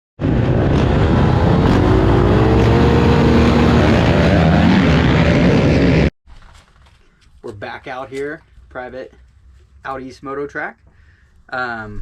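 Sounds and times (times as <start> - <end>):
dirt bike engine revving high: 0.2 - 6.1.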